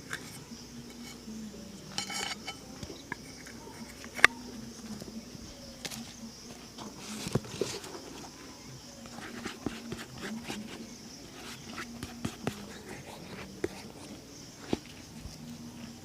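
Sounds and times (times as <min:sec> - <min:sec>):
high insect drone: 0:00.0 - 0:16.0
brushing scrape: 0:01.9 - 0:04.3, 0:06.0 - 0:15.3.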